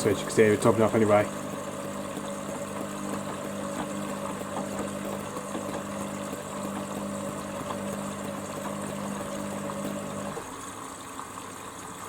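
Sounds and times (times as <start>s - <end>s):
washing machine electrical hum: 0.0s - 12.0s.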